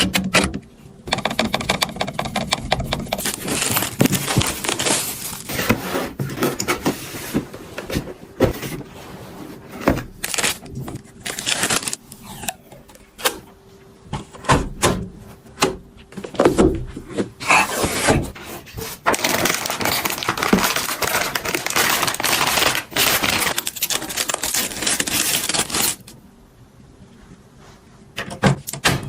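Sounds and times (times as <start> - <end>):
knocks and clicks: 0.0 - 3.3
objects being handled: 2.2 - 13.1.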